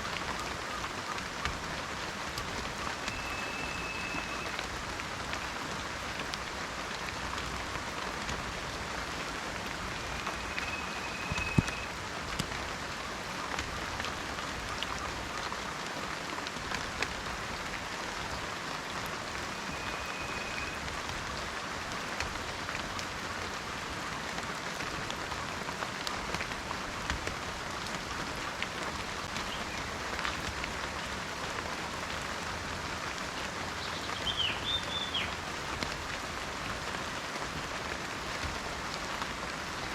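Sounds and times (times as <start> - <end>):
raindrops ticking: 0.0 - 39.9
steady rain falling: 0.0 - 39.9
faint short high whistle: 3.1 - 4.5, 10.0 - 11.9.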